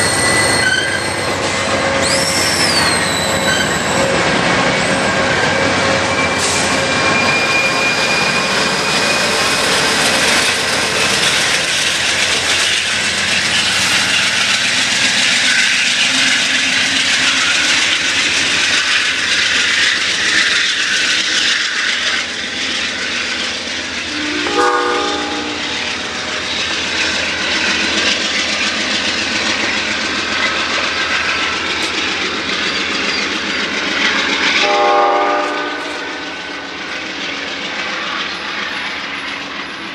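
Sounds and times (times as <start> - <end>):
train wheels clacking on rails: 0.0 - 39.9
locomotive air horn: 24.1 - 25.7, 34.6 - 36.2.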